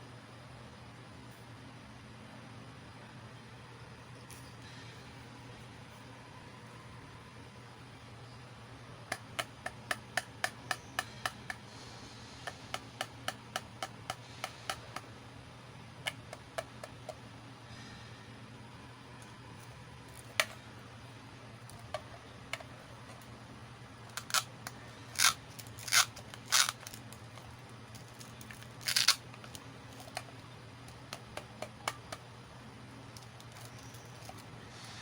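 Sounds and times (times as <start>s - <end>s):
plastic toy pieces clicking: 24.1s - 32.2s, 33.2s - 34.4s.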